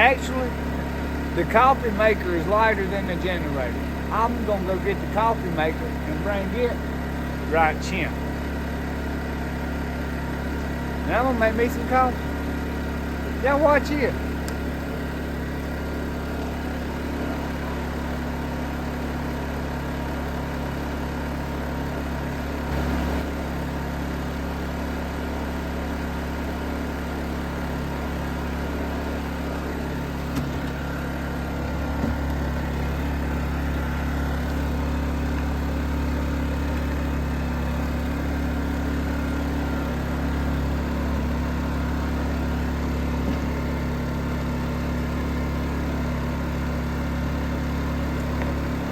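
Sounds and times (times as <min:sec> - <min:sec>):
generator engine humming: 0:00.0 - 0:48.9.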